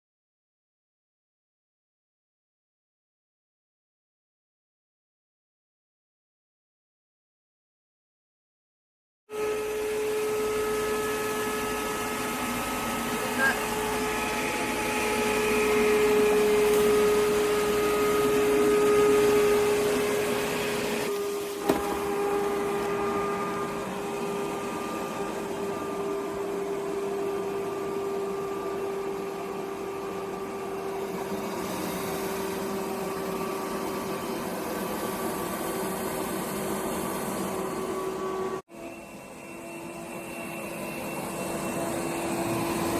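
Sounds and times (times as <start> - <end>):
robot vacuum motor whine: 9.3 - 42.9.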